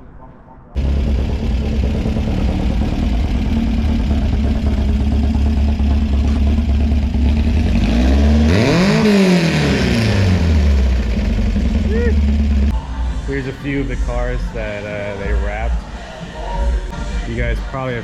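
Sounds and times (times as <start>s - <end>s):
car engine idling and revving: 0.8s - 12.8s.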